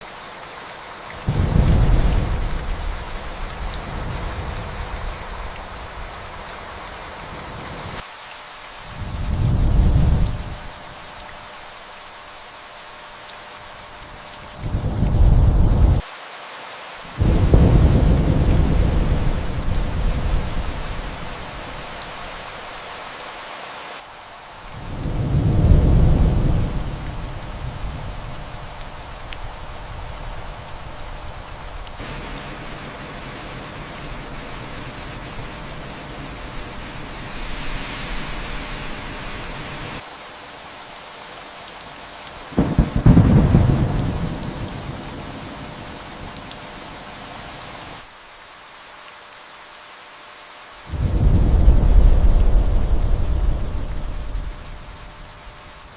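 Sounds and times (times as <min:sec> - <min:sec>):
rain hissing: 0:00.0 - 0:55.9
distant thunder rumbling: 0:01.2 - 0:06.7, 0:17.2 - 0:21.8, 0:24.8 - 0:40.0, 0:42.6 - 0:45.7, 0:50.9 - 0:55.0.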